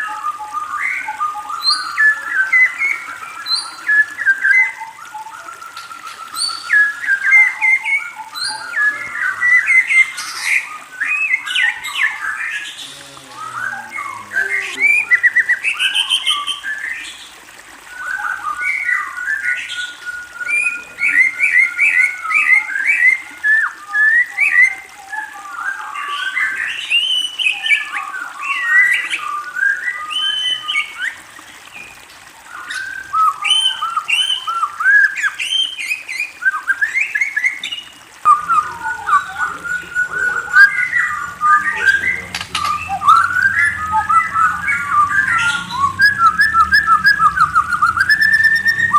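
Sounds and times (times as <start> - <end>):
bird chirping and warbling: 0.0 - 48.9
low steady hum: 38.3 - 48.9.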